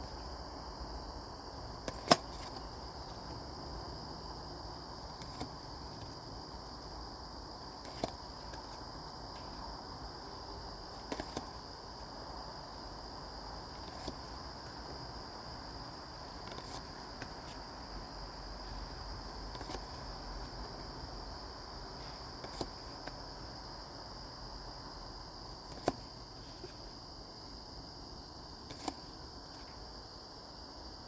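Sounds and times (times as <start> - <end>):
faint high whine: 0.0 - 31.0
steady background hiss: 0.0 - 31.0
cards tapping and clicking: 1.7 - 3.4, 5.0 - 6.6, 7.6 - 12.2, 13.6 - 15.0, 16.3 - 17.6, 19.5 - 21.0, 22.0 - 23.6, 25.6 - 26.8, 28.6 - 29.8.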